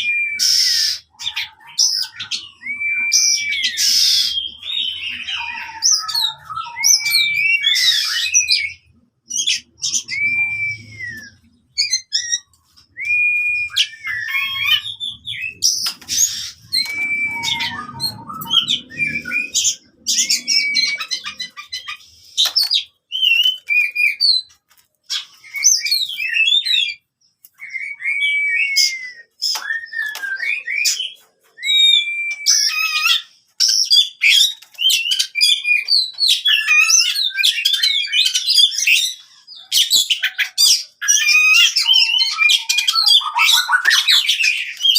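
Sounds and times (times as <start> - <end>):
songbird whistling and chattering: 0.0 - 24.5, 25.1 - 44.9.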